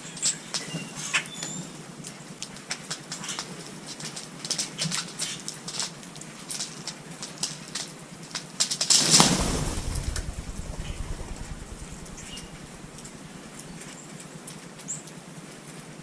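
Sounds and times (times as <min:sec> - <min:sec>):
bird wings flapping: 0:08.8 - 0:14.0.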